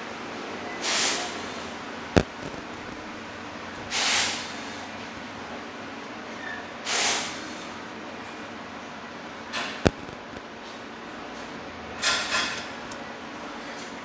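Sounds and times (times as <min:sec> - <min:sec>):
sharp click: 0:02.2 - 0:03.0, 0:09.9 - 0:10.4
tape tearing off a roll: 0:02.2 - 0:03.0, 0:09.9 - 0:10.4.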